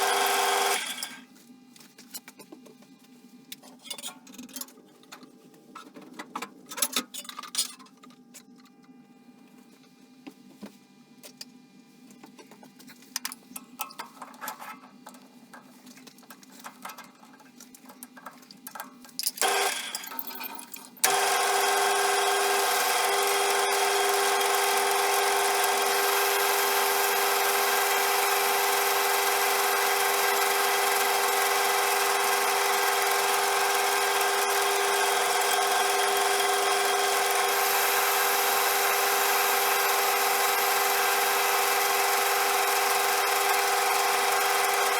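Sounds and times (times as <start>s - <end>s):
metal lathe motor humming: 0.0s - 1.2s, 19.4s - 20.1s, 21.0s - 44.9s.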